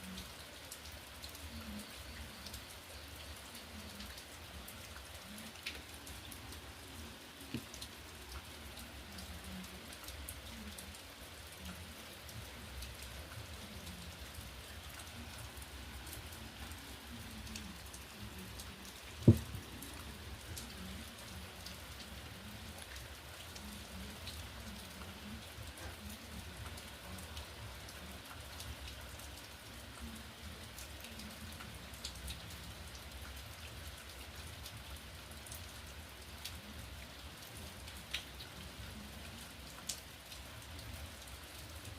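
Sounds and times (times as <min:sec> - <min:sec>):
rain falling: 0:00.0 - 0:41.9
dull thump: 0:19.2 - 0:19.6.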